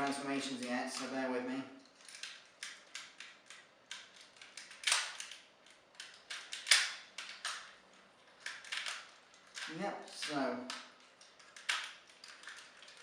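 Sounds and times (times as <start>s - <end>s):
plastic action figure clicking: 8.4s - 13.0s.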